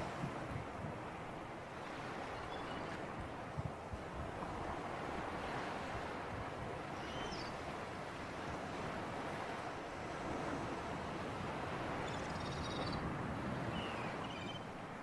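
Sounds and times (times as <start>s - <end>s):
wind buffeting microphone: 0.0s - 1.4s
sea surf washing: 0.0s - 12.2s.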